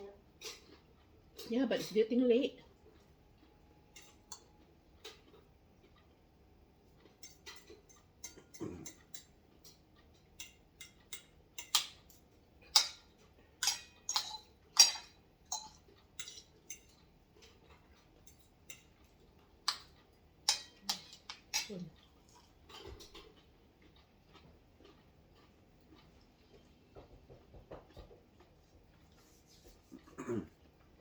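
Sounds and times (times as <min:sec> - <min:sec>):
chewing clicks and smacks: 0:02.8 - 0:06.2, 0:20.8 - 0:29.2.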